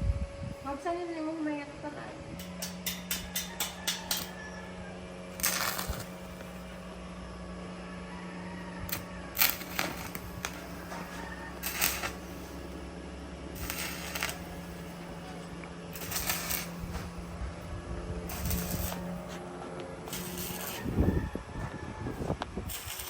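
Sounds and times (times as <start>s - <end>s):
steady low hum: 0.0s - 23.0s
welding arc crackling: 2.4s - 4.4s, 5.2s - 7.1s, 8.9s - 12.9s, 13.5s - 17.6s, 18.2s - 23.0s.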